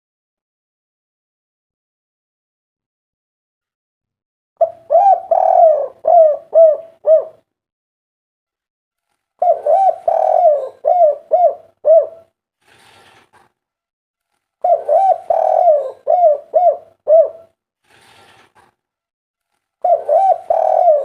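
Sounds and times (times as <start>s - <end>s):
dove cooing: 4.6s - 7.5s, 9.4s - 12.3s, 14.6s - 17.6s, 19.8s - 21.0s.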